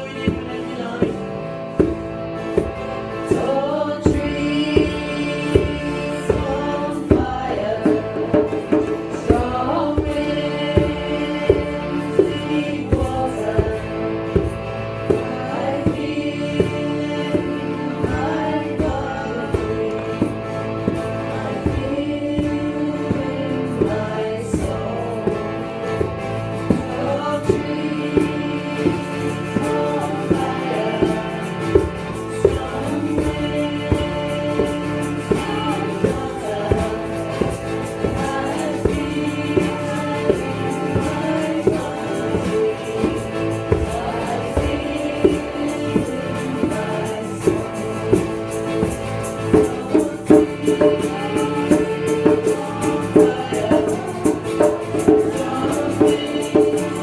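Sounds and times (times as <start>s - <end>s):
percussion beat: 0.0s - 57.0s
steady drone: 0.0s - 57.0s
group chanting in unison: 26.7s - 48.9s.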